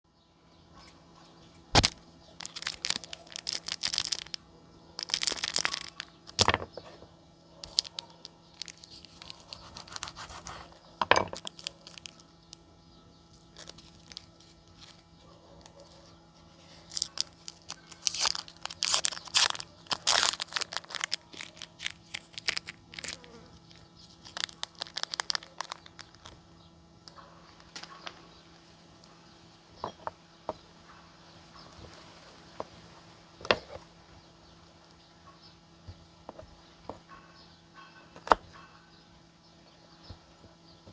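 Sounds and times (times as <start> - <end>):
chocolate bar snapping: 1.7 - 4.4, 5.0 - 6.7, 7.6 - 12.6, 16.9 - 26.4, 38.2 - 38.4
wafer crunching and crumbling: 1.7 - 4.4, 5.0 - 6.8, 13.4 - 26.4.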